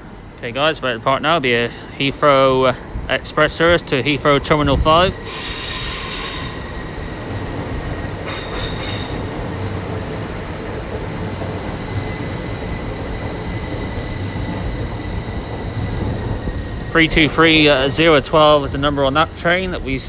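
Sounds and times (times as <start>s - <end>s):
rumble of moving train: 0.0s - 20.0s
train wheels squealing: 5.2s - 10.5s.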